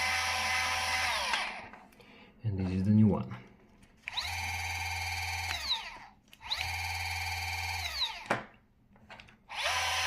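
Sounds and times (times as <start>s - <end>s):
electric motor whining: 0.0s - 1.7s, 4.1s - 8.3s, 9.5s - 10.0s.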